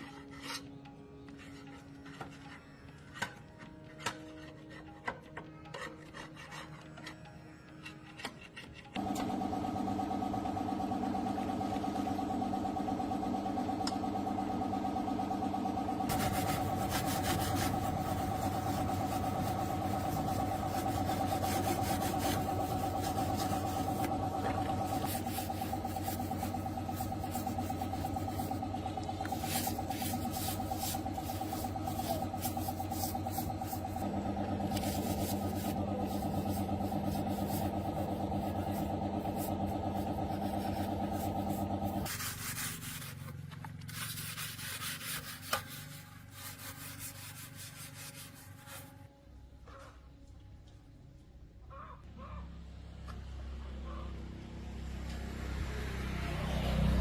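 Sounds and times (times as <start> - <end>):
rubbing or filing: 0.0 - 3.3, 3.9 - 9.0, 16.1 - 49.0
tractor diesel engine running: 9.0 - 48.9.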